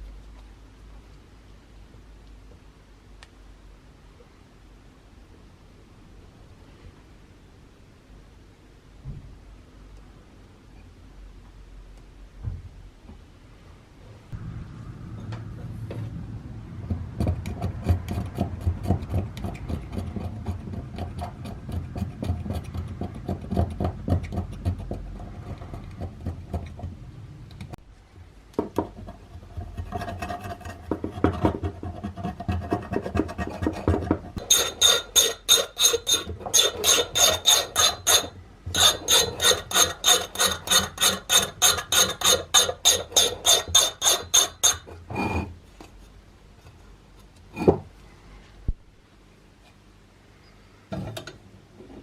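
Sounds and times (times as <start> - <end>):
hand sanding rusty sheet metal: 29.8 - 44.9.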